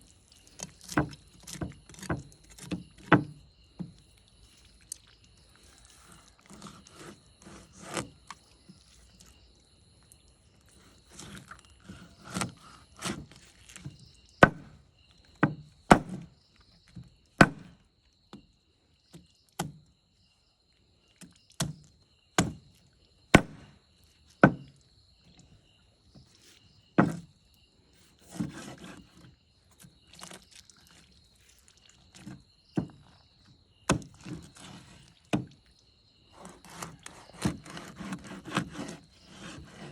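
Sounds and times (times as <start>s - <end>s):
blade scraping along block: 5.8s - 8.4s, 10.8s - 14.7s, 28.0s - 29.3s, 34.2s - 35.0s, 36.3s - 39.9s
knife chopping on wooden block: 14.4s - 14.8s, 15.4s - 16.3s, 17.4s - 17.8s, 22.4s - 22.6s, 23.4s - 23.8s, 27.0s - 27.2s, 36.4s - 39.9s.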